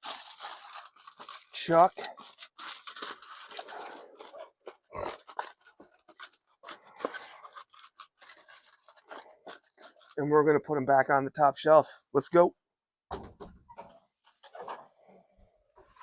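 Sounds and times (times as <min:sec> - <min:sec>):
aluminium foil crinkling: 0:00.0 - 0:10.2.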